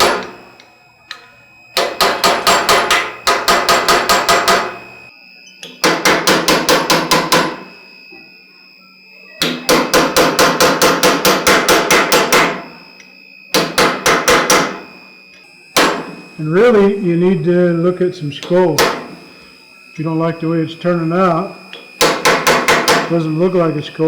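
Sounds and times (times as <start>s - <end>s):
hammer striking steel on anvil: 0.0s - 5.0s, 5.6s - 7.7s, 9.4s - 12.9s, 13.5s - 14.9s, 15.8s - 16.2s, 18.4s - 19.2s, 21.7s - 23.1s.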